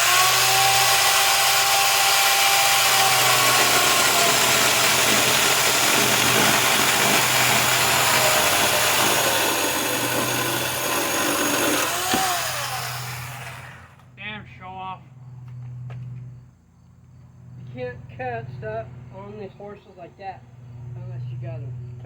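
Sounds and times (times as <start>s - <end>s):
electric chainsaw cutting wood: 0.0s - 14.0s.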